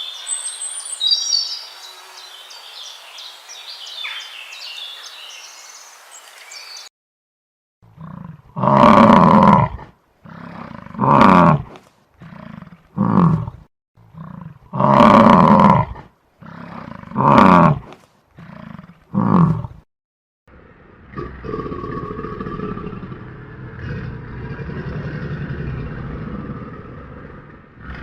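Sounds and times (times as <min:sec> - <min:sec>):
lion roaring: 0:08.0 - 0:19.8, 0:20.5 - 0:28.0.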